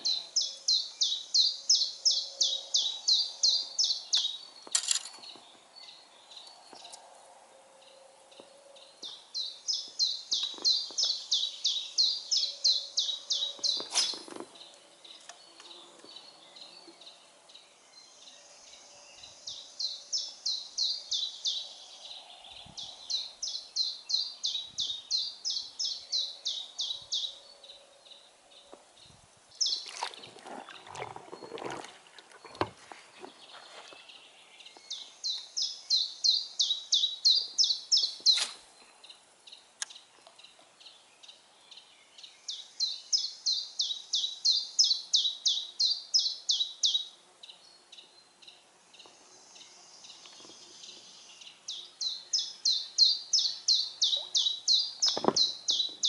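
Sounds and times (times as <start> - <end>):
songbird singing: 0.0 - 56.0
knocks and rustles: 55.1 - 56.0.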